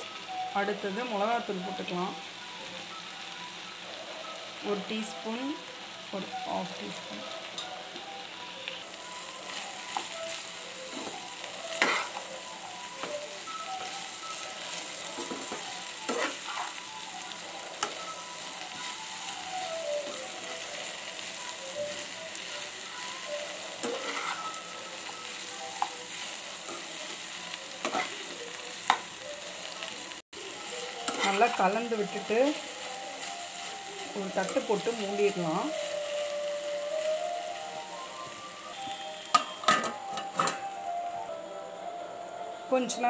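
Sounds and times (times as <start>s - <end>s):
vegetables sizzling in hot oil: 0.0s - 41.3s
metal ladle scraping pan: 23.8s - 24.5s.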